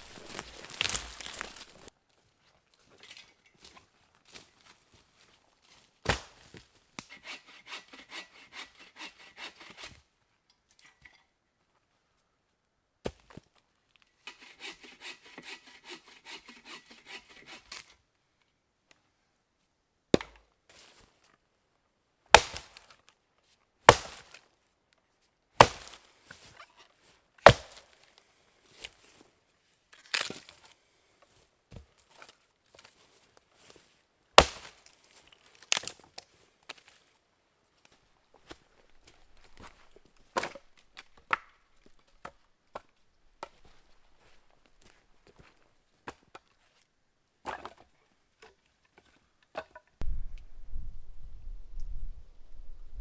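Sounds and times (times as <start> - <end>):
axe chopping wood: 0.0 - 1.9, 20.2 - 20.4, 22.4 - 22.7, 23.9 - 24.2, 25.6 - 26.0, 27.4 - 27.8, 34.4 - 34.8
sawing wood: 0.0 - 1.9, 7.1 - 9.9, 14.3 - 17.7.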